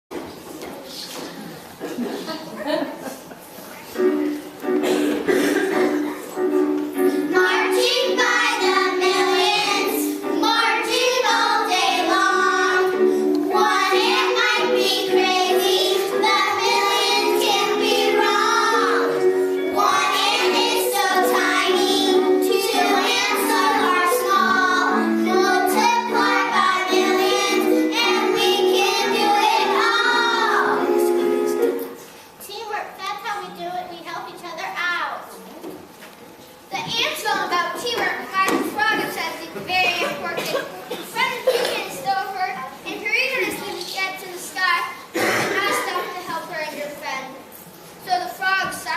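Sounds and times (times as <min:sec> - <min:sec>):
children singing: 0:06.9 - 0:31.8.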